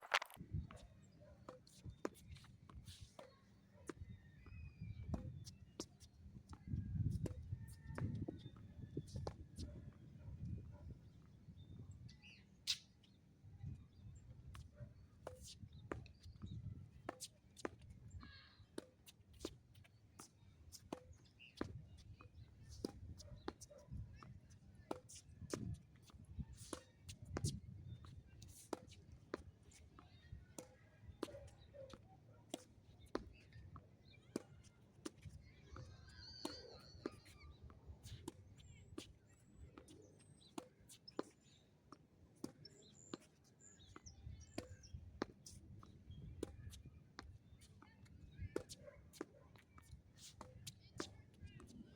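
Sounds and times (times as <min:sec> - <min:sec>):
wind rumble on microphone: 0:00.3 - 0:00.8, 0:04.6 - 0:05.4, 0:06.5 - 0:12.1, 0:15.7 - 0:16.9, 0:27.2 - 0:28.0
small birds chirping: 0:42.4 - 0:48.9.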